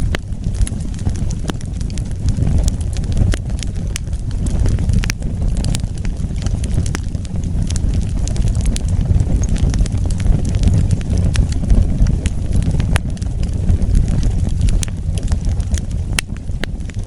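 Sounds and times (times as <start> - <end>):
fire flames rumbling: 0.0 - 17.0
wood crackling and popping: 0.0 - 17.0.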